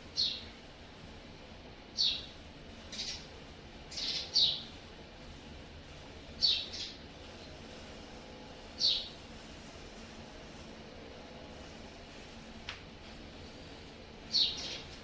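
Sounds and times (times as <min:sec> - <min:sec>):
bird chirping: 0:02.0 - 0:02.3, 0:02.9 - 0:03.3, 0:03.9 - 0:04.6, 0:06.4 - 0:07.0, 0:08.8 - 0:09.1, 0:14.3 - 0:14.9.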